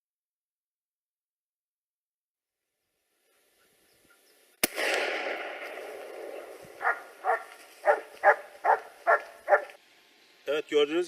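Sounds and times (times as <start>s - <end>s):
gunshot echoing: 4.6s - 8.0s
dog barking: 6.8s - 9.8s.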